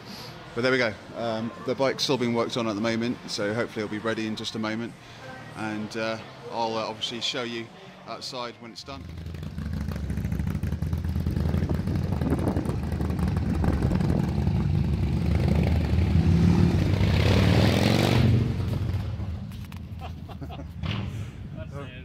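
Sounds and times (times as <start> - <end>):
motorcycle engine rumbling: 9.0 - 17.4.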